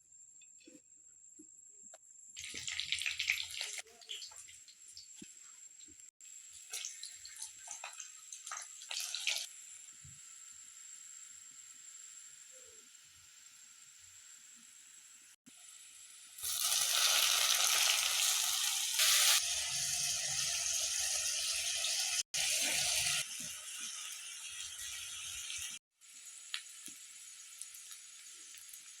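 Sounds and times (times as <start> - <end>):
mushrooms sizzling in a pan: 2.4 - 29.0.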